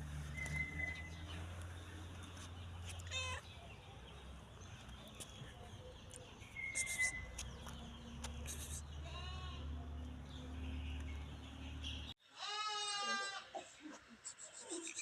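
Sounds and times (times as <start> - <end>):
cat meowing: 3.0 - 3.5.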